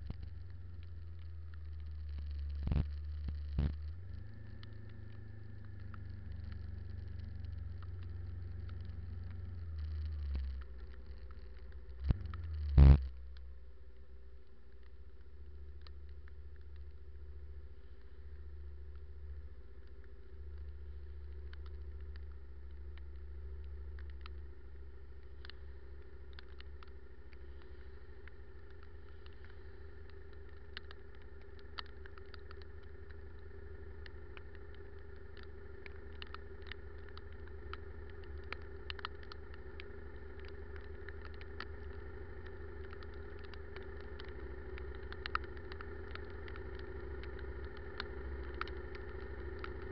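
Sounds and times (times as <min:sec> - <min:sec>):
sharp ticks: 0:14.4 - 0:49.9.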